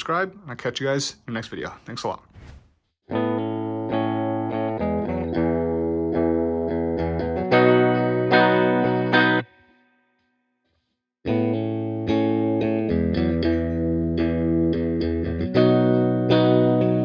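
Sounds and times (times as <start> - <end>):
clean electric guitar strumming: 3.1 - 9.8, 11.3 - 17.0.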